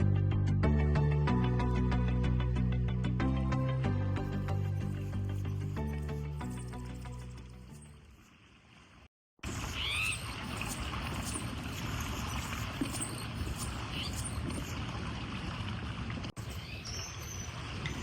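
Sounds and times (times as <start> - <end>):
water noise: 6.8 - 18.0
bird chirps: 9.5 - 14.8, 16.4 - 18.0.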